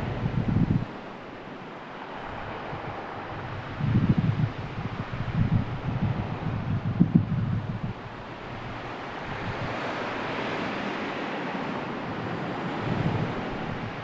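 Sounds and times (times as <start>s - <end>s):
sea waves washing in: 0.0s - 14.0s
wind buffeting microphone: 0.0s - 14.0s.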